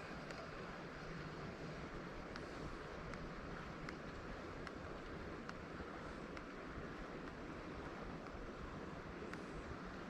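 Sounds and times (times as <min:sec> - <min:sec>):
faint short tick: 0:04.6 - 0:04.8, 0:09.3 - 0:09.5.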